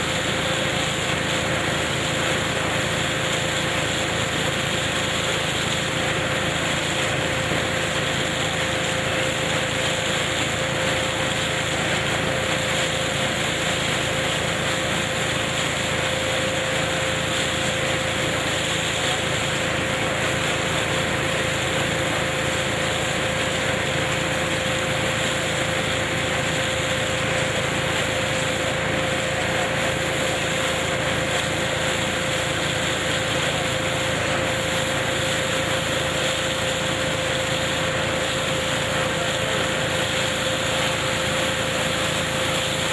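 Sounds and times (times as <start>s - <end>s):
harvesting machine running: 0.0s - 42.9s.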